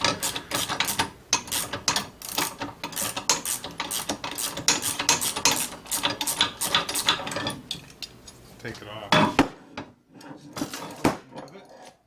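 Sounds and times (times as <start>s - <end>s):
ratchet wrench clicking: 0.0s - 7.2s.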